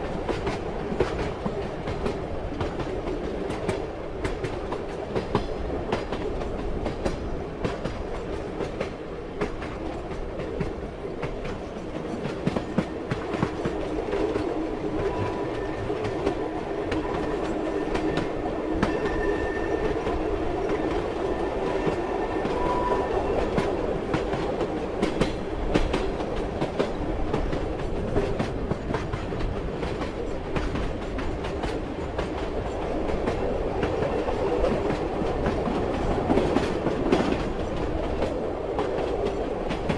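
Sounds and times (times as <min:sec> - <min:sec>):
train wheels clattering over rails: 0:00.0 - 0:39.9
faint high wheel squeal: 0:17.7 - 0:20.1.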